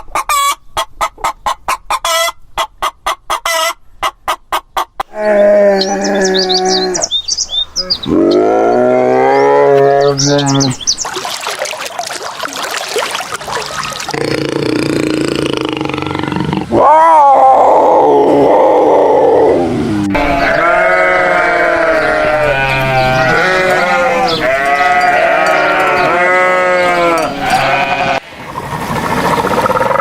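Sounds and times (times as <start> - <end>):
livestock bleating: 20.1 - 28.2.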